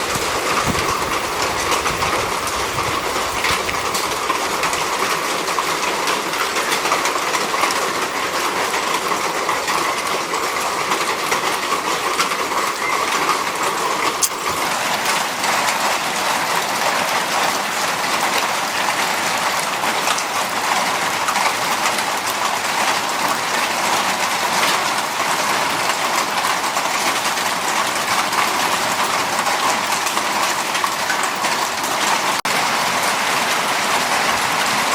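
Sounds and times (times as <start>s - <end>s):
heavy rain falling: 0.0s - 34.9s
sharp click: 14.2s - 14.5s.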